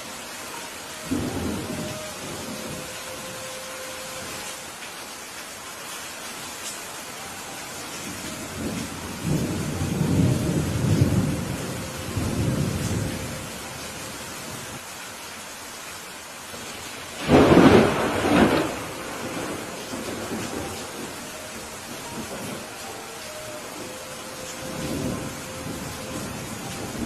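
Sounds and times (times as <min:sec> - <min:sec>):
steady rain: 0:00.0 - 0:27.0
rolling thunder: 0:08.5 - 0:13.6, 0:17.2 - 0:22.7, 0:24.5 - 0:27.0.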